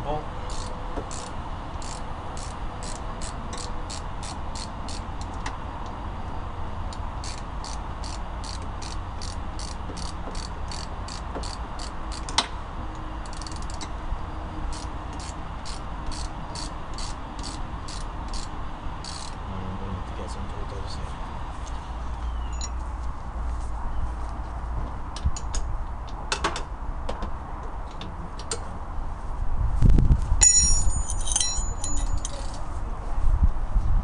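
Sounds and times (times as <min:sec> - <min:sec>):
ratchet wrench clicking: 0:00.5 - 0:05.4, 0:07.2 - 0:12.4, 0:13.2 - 0:13.9, 0:14.7 - 0:19.4.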